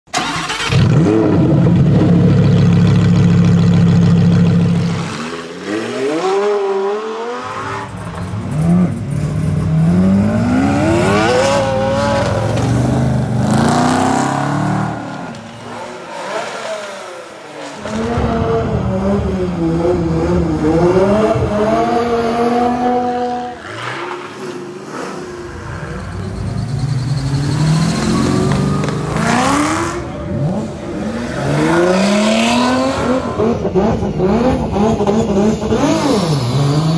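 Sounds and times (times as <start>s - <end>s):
car engines revving and accelerating: 0.2s - 36.9s.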